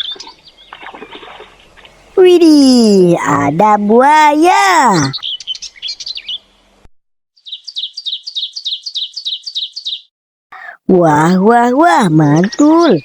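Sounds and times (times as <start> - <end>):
bird chirping: 0.0 - 1.9, 4.9 - 6.6, 7.4 - 10.8, 11.6 - 13.0.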